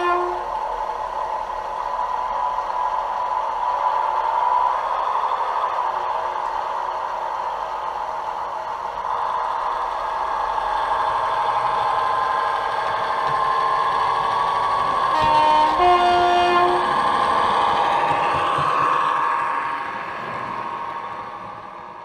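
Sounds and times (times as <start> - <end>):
two-note horn: 0.0 - 0.5, 15.2 - 16.9
model locomotive engine drone: 0.0 - 22.0.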